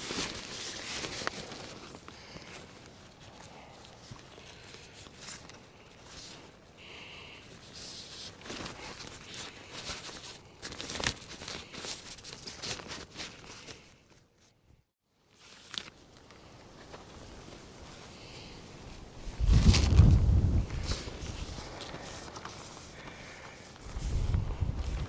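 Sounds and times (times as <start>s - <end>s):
tarp rustling and crinkling: 0.0s - 14.0s, 15.3s - 25.0s
footsteps on ground: 19.4s - 25.0s.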